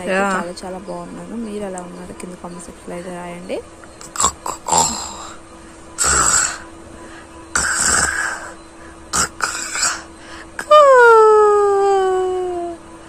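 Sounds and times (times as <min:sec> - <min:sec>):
baby fussing: 0:07.5 - 0:11.0.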